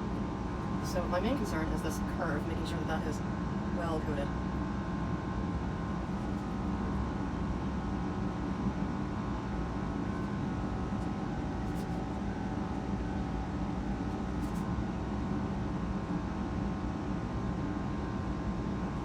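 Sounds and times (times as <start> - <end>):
fan humming: 0.0 - 5.2.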